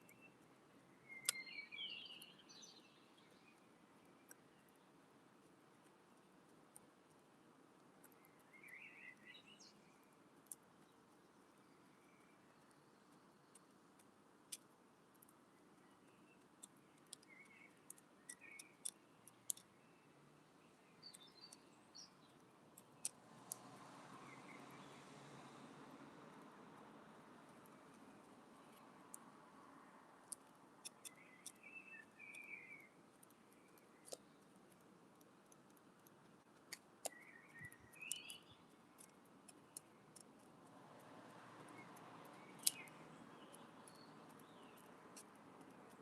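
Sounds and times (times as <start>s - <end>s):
faint small bird chirps: 0.0s - 5.0s, 8.0s - 13.8s, 15.2s - 25.6s, 30.4s - 34.5s, 37.0s - 40.5s, 41.6s - 46.0s
bird pecking seed taps: 16.3s - 19.8s.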